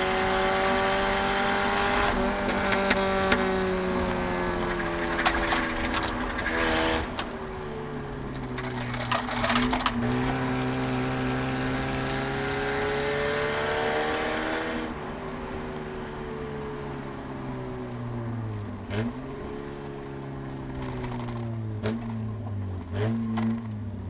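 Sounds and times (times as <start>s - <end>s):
car engine accelerating: 0.0s - 24.0s
rattling clatter: 4.6s - 7.3s, 8.3s - 10.4s.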